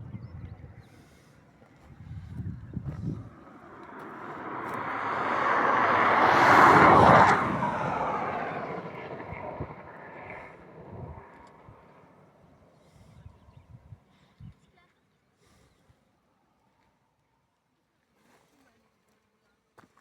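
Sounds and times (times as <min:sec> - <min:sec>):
vehicle passing by: 0:02.7 - 0:12.3.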